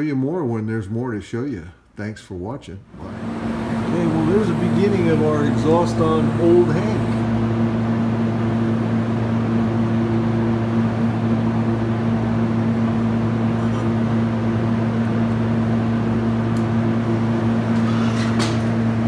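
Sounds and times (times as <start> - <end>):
mechanical hum: 1.0 - 19.0.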